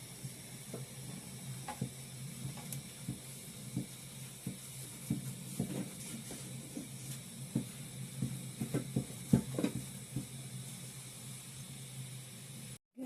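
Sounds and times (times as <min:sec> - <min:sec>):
pot cooking with hiss: 0:00.0 - 0:13.0
utensil knocking on pot: 0:02.6 - 0:10.3.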